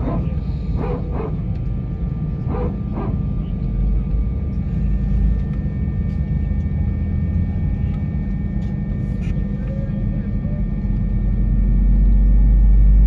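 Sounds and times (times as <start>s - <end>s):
jet engine low rumble: 0.0s - 13.0s.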